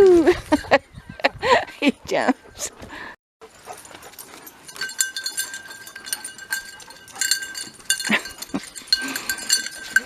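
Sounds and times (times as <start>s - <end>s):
small metal bell jingling: 3.4s - 10.0s.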